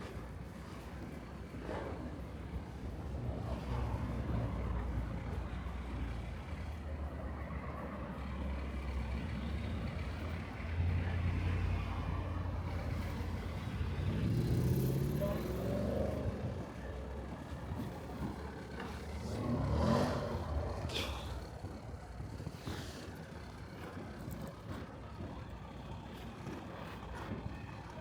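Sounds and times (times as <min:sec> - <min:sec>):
vehicle engine rumbling: 0:07.4 - 0:28.0
vehicle accelerating: 0:08.4 - 0:24.4.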